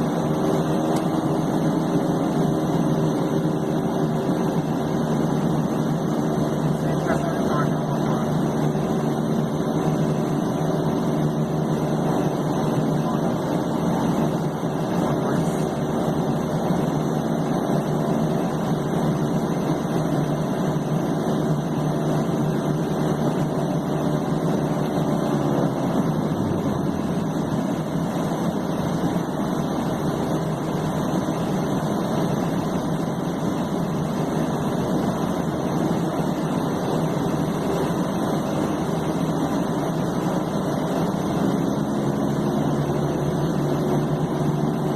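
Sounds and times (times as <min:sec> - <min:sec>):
turboprop engine idling: 0:00.0 - 0:44.9.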